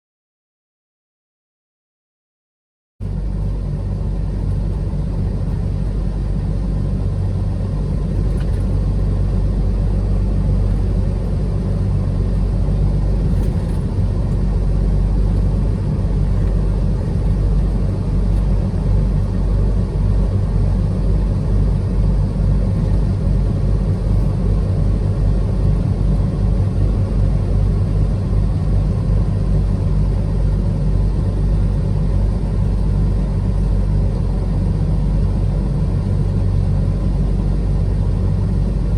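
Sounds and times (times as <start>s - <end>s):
truck engine and road rumble: 3.0s - 38.9s.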